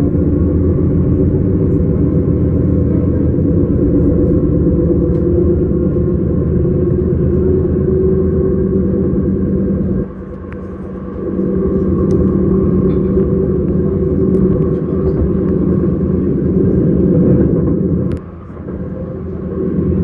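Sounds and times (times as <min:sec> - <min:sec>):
train running with low hum: 0:00.0 - 0:20.0.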